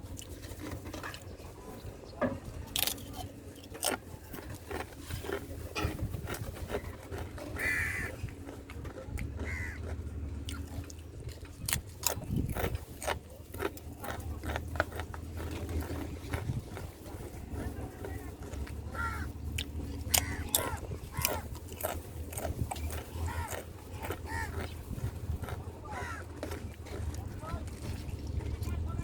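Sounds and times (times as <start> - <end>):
crow cawing: 7.6 - 8.2, 9.4 - 9.9, 18.9 - 19.4, 20.1 - 21.4, 24.2 - 24.7, 25.9 - 26.4.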